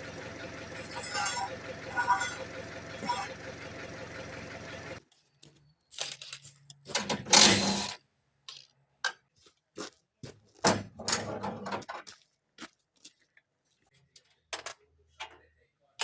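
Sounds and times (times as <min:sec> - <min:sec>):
metal parts clicking and clanking: 0:00.0 - 0:05.0, 0:05.9 - 0:08.7
metal rattling and scraping: 0:00.0 - 0:05.0.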